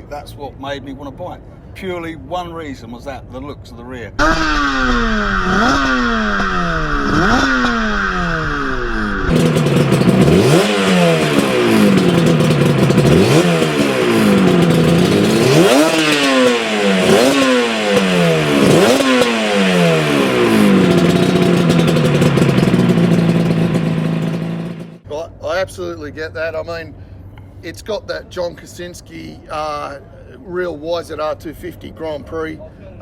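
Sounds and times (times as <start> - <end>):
motorcycle engine revving: 4.2 - 25.0.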